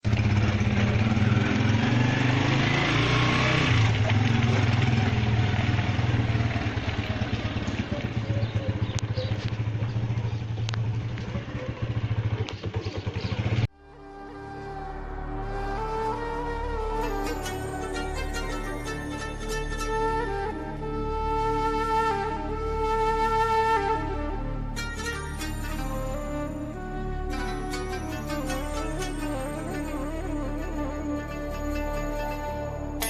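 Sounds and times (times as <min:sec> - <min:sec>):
vehicle engine running: 0:00.0 - 0:13.7
music: 0:13.7 - 0:33.0.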